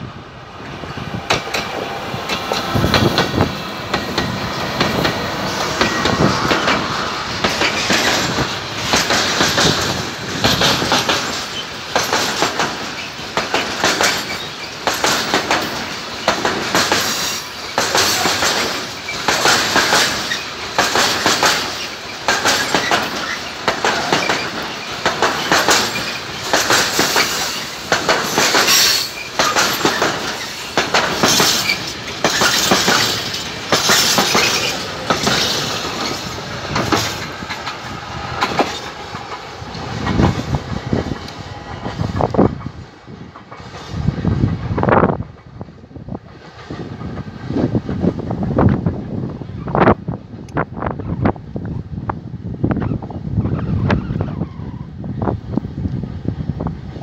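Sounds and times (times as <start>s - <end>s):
diesel locomotives passing: 0.0s - 57.0s
wheels clattering over rail joints: 1.2s - 45.6s.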